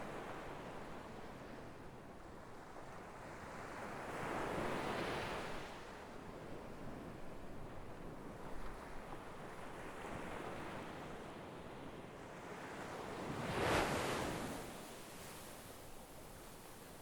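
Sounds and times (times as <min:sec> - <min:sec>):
sea waves washing in: 0:13.3 - 0:15.2.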